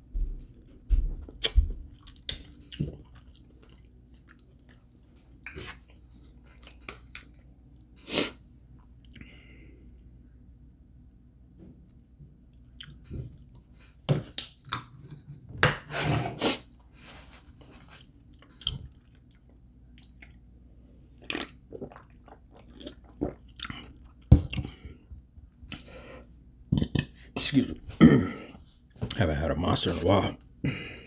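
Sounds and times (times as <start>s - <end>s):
crunchy chewing of fried chicken: 1.3s - 8.4s, 21.2s - 25.0s.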